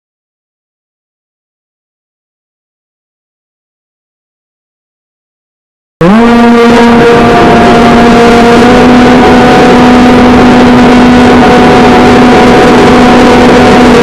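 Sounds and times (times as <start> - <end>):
electric motor propeller buzzing: 6.0 - 14.0
wind noise: 6.1 - 14.0.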